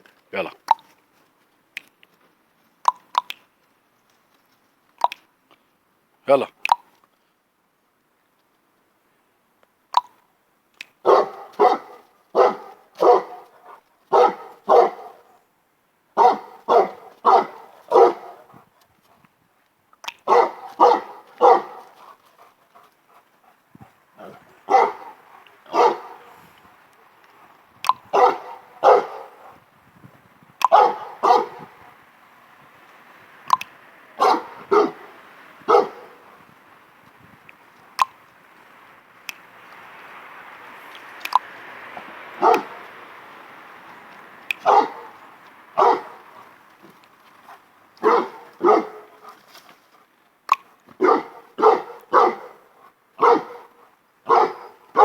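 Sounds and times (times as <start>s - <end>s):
large dog barking: 11.0s - 15.4s, 16.2s - 18.6s, 20.2s - 23.6s, 24.2s - 26.5s, 28.1s - 29.6s, 30.7s - 32.0s, 34.2s - 36.3s, 42.4s - 42.9s, 44.6s - 45.2s, 45.8s - 46.5s, 47.5s - 49.4s, 51.0s - 55.0s.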